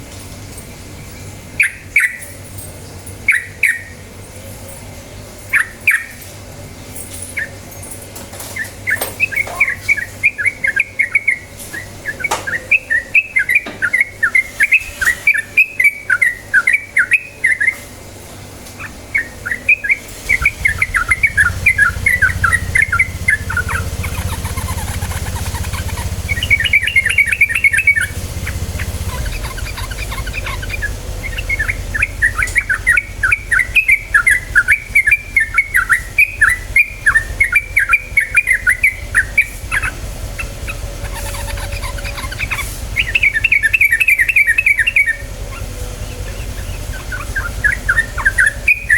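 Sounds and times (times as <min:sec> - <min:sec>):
steady low hum: 0:00.0 - 0:48.9
bulbul singing: 0:00.6 - 0:48.9.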